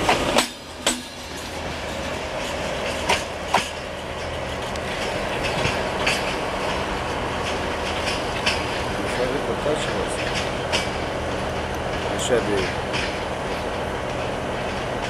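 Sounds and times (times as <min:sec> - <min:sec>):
train wheels rumbling on track: 0:00.0 - 0:15.0
wheels clacking over rail joints: 0:00.0 - 0:15.0.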